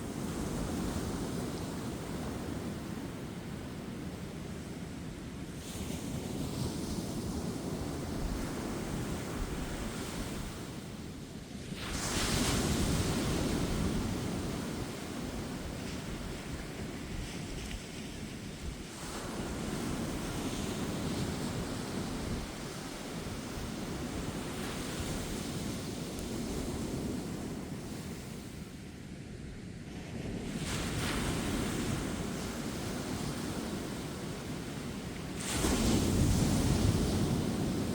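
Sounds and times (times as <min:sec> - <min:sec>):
low rumble of surf: 0:00.0 - 0:37.9
wind on microphone: 0:30.1 - 0:37.9.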